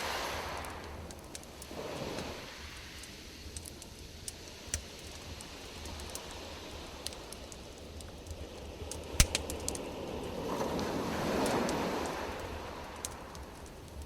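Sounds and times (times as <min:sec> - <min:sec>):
campfire wood crackling: 0:00.0 - 0:14.0
sharp pops of fire: 0:03.0 - 0:14.0.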